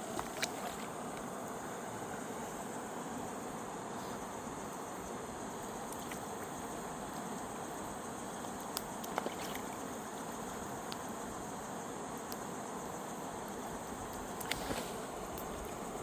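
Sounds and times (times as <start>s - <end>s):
faint clicks: 13.4s - 15.8s.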